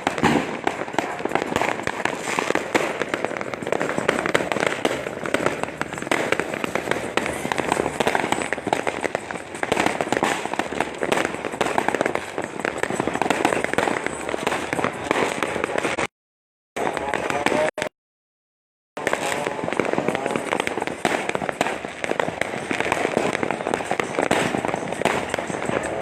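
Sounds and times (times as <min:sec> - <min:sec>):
firecrackers crackling: 0:00.0 - 0:16.1, 0:16.8 - 0:17.9, 0:19.0 - 0:26.0.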